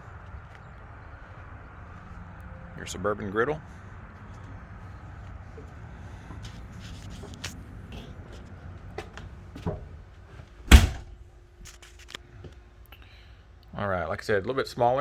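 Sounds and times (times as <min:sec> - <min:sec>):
outdoor background noise: 0:00.0 - 0:15.0
trailer door banging shut: 0:09.0 - 0:10.0, 0:10.6 - 0:11.3.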